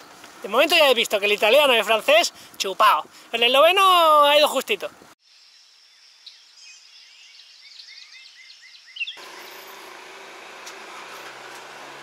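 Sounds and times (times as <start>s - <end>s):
small birds chirping: 4.8s - 9.7s.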